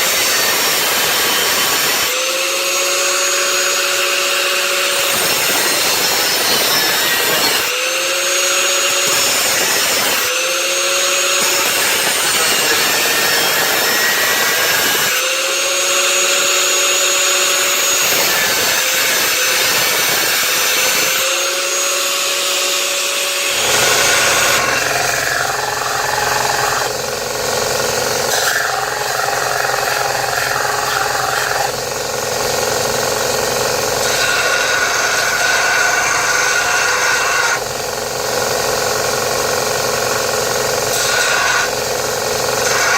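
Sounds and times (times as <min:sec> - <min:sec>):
power tool cutting steel: 0:00.0 - 0:42.9
motor whining: 0:23.2 - 0:32.0.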